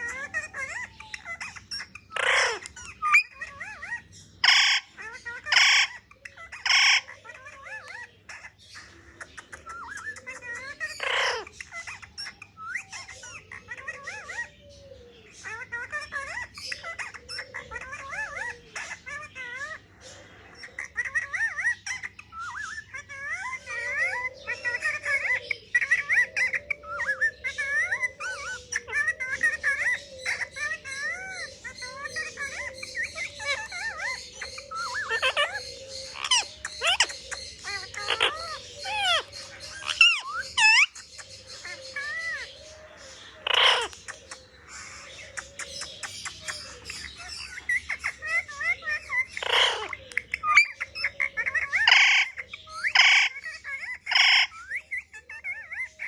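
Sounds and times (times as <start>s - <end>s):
parrot squawking and whistling: 0.0s - 14.6s, 20.7s - 56.0s
parrot harsh screech: 2.1s - 3.8s, 43.4s - 44.0s, 51.8s - 53.4s, 54.1s - 54.6s.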